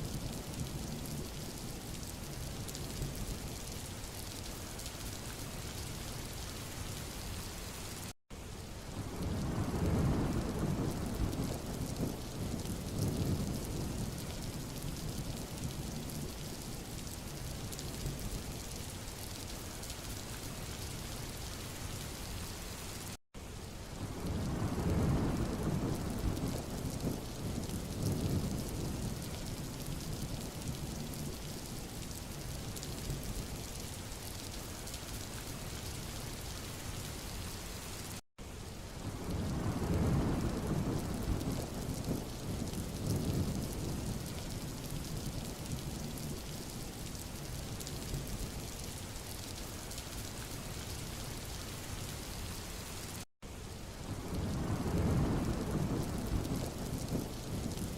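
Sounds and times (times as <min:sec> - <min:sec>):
rain hissing on a road: 0:00.0 - 0:57.9.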